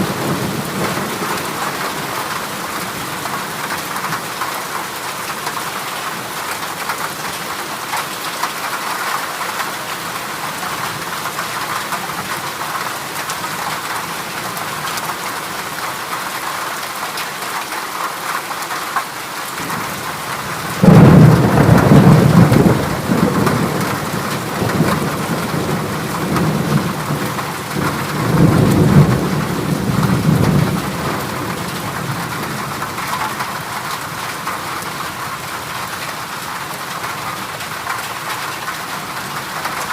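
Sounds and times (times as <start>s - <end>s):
heavy rain on a metal roof: 0.0s - 39.9s
thunder rumble: 20.6s - 33.4s.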